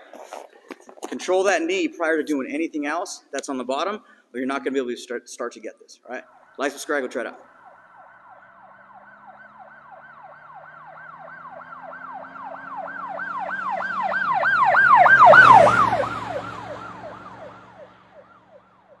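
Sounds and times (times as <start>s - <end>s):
road noise: 6.0s - 19.0s
emergency siren yelping: 6.1s - 19.0s
vehicle engine: 7.5s - 19.0s.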